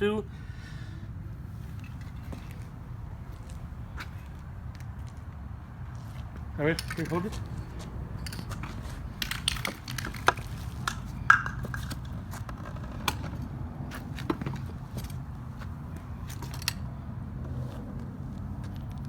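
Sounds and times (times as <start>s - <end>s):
objects being handled: 6.7s - 13.4s.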